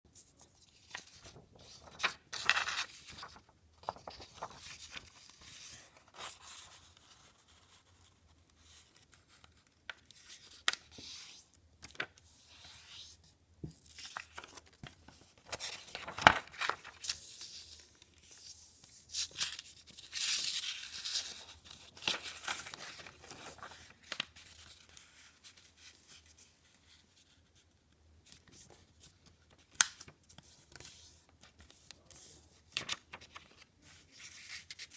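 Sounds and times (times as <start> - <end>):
paper crinkling and rustling: 0.2 - 13.1, 13.7 - 27.7, 28.3 - 34.9
paper snap: 29.7 - 30.1.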